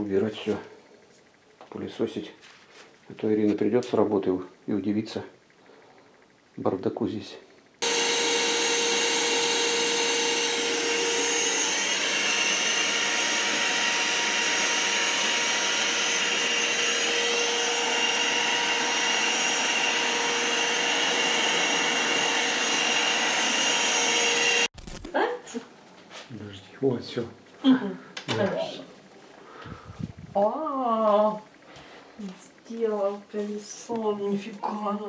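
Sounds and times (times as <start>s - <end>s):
vacuum cleaner running: 7.8s - 24.7s.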